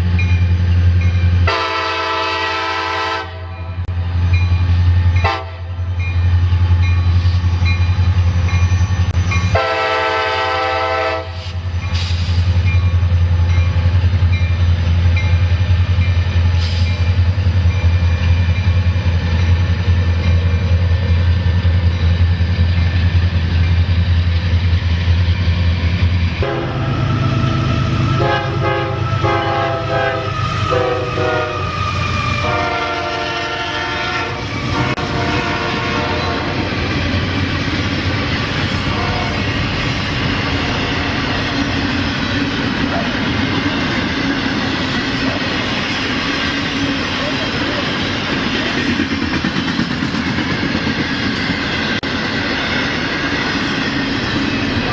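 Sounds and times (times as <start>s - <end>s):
locomotive engine droning: 0.0s - 54.9s
train horn blasts: 1.4s - 3.8s, 5.2s - 5.8s, 9.5s - 11.6s, 26.4s - 31.8s, 32.4s - 36.7s, 38.8s - 39.6s.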